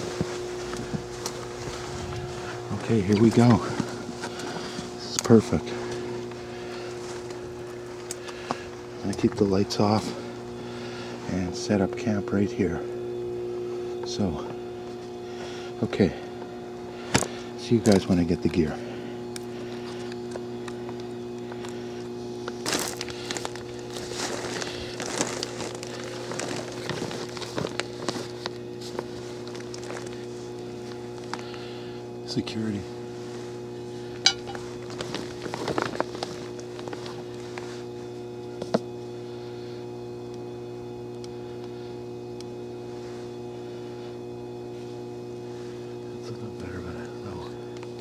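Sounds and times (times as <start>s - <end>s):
footsteps crunching in wet snow: 0.0s - 10.6s, 22.4s - 31.6s, 34.2s - 38.2s
low electrical hum: 0.0s - 48.0s.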